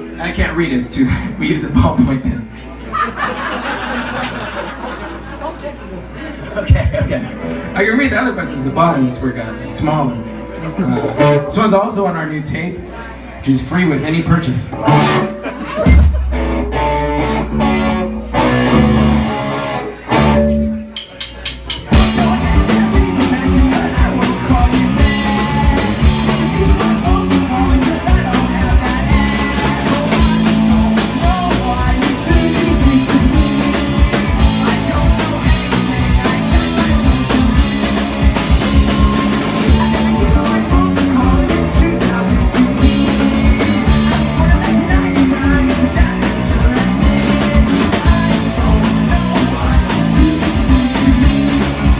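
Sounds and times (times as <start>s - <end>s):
rock band playing: 6.4s - 12.5s, 14.2s - 51.9s
electric guitar: 9.6s - 11.6s, 14.6s - 21.0s, 21.8s - 51.9s
drum fill: 20.2s - 51.9s.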